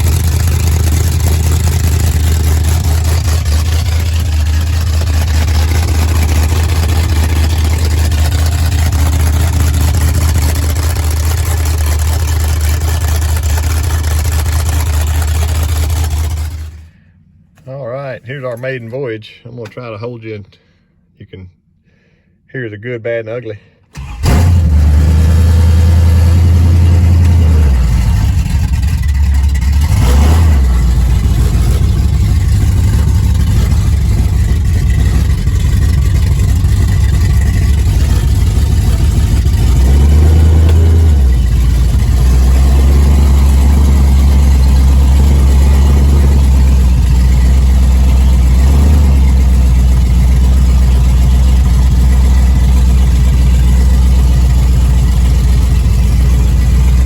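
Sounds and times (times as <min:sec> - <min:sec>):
loud car engine driving: 0:00.0 - 0:17.0, 0:24.0 - 0:57.0.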